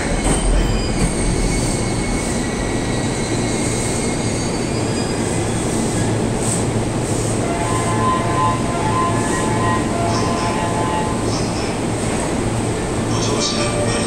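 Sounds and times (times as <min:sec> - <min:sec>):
train wheels rumbling: 0:00.0 - 0:14.0.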